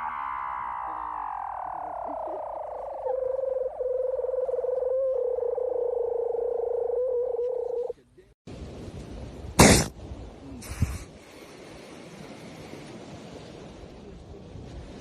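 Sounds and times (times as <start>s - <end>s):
seal rattling call: 0.0s - 7.9s
wind: 0.0s - 15.0s
surf: 8.5s - 15.0s.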